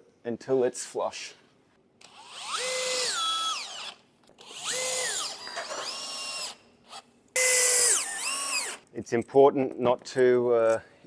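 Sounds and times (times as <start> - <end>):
cordless drill motor whine: 2.0 - 8.8.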